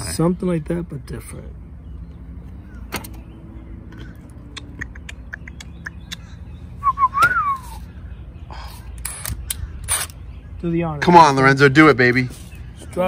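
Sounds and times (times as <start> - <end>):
bird calling: 1.8 - 13.0.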